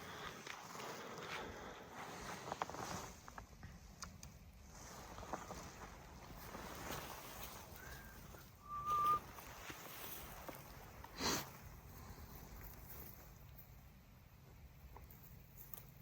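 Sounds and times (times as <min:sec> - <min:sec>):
rustle or sniff: 0:00.0 - 0:03.4, 0:04.6 - 0:13.4
faint outdoor background: 0:00.0 - 0:16.0.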